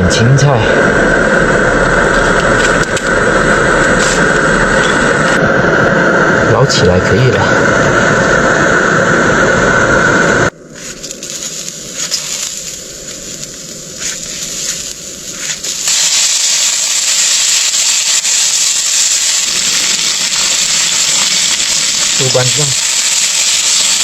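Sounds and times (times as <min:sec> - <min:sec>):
food frying in oil: 0:11.1 - 0:24.0.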